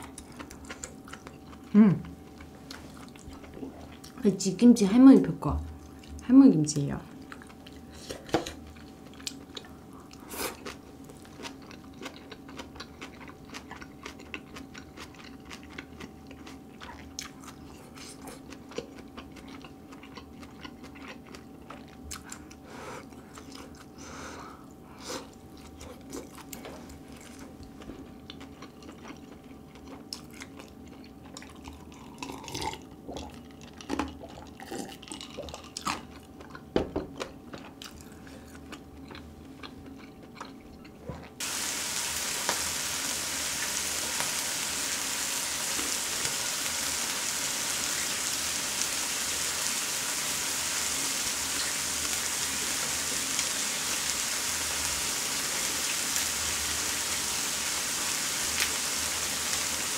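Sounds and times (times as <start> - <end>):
close chewing and crunching: 0.0 - 4.3, 7.2 - 24.0, 25.4 - 41.4
faint steady hum: 0.0 - 59.9.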